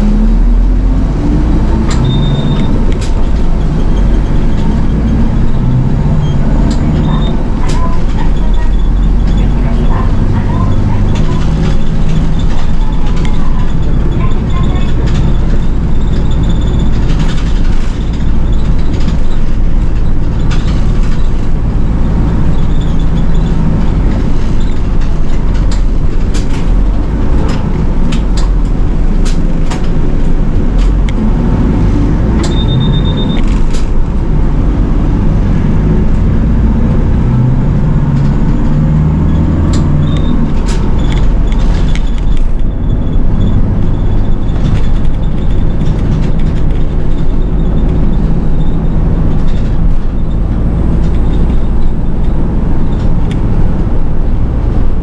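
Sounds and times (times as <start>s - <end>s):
bus engine and road rumble: 0.0s - 55.0s
short high beep: 2.0s - 2.7s, 32.5s - 33.4s
clicks and rattles: 6.6s - 31.2s, 39.5s - 55.0s.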